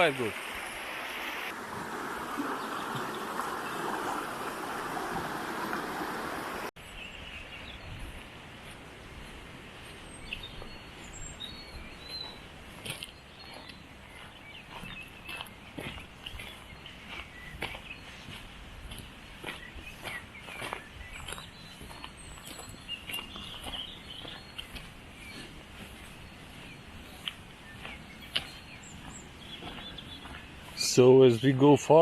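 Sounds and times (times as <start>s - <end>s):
river rushing: 0.0s - 6.7s.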